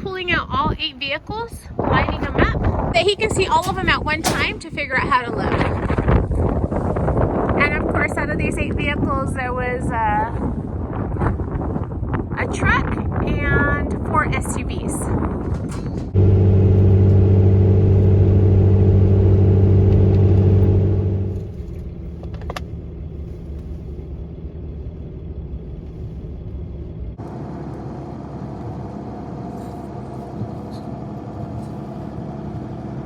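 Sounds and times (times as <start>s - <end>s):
road rumble: 0.0s - 33.0s
truck engine drone: 15.9s - 33.0s.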